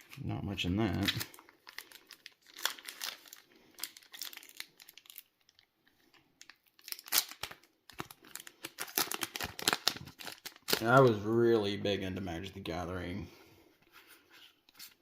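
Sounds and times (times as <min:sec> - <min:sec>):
foil wrapper crinkling and tearing: 0:00.8 - 0:11.2.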